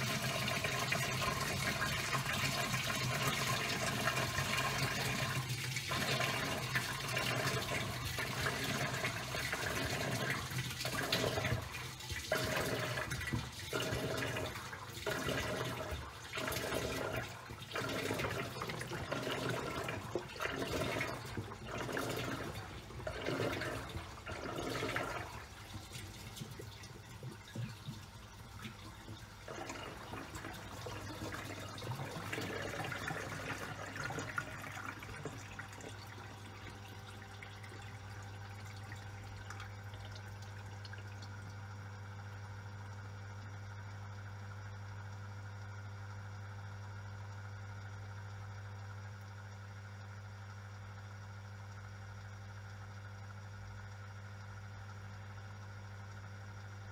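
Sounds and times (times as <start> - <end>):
washing machine motor hum: 0.0 - 56.9
water churning in washing machine: 0.0 - 56.9.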